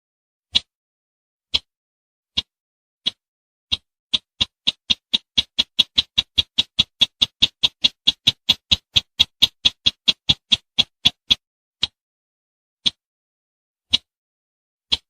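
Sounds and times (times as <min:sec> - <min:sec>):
bird ticking call: 0:02.3 - 0:12.0.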